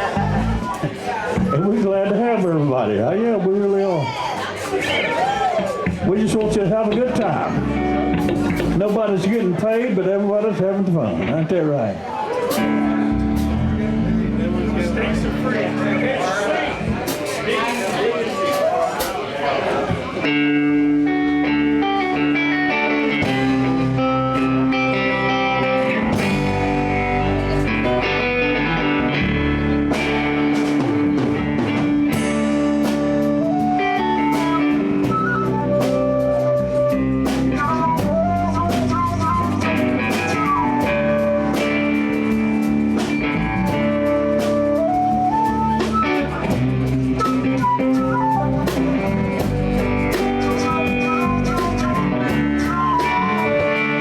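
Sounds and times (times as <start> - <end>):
blues band playing: 0.0 - 54.0
guitar: 0.0 - 54.0.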